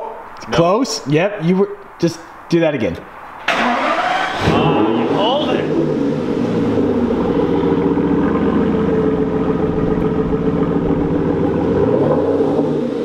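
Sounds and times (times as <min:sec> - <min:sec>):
car engine idling: 0:03.5 - 0:13.0.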